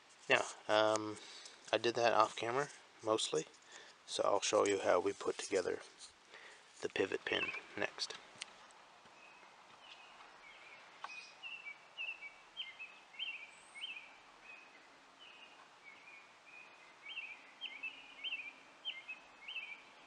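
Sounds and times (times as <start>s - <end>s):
faint steady outdoor hiss: 0.0s - 20.0s
bird chirping: 6.4s - 8.2s, 9.1s - 20.0s.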